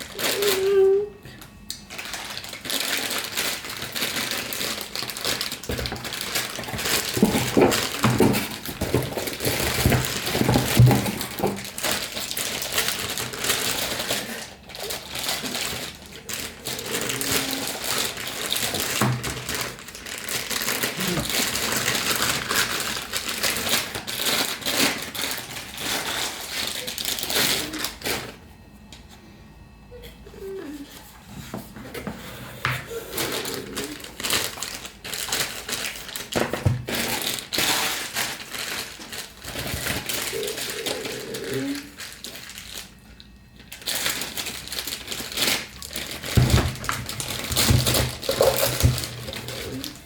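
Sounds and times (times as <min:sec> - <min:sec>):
rustling and crinkling: 0:00.0 - 0:50.0.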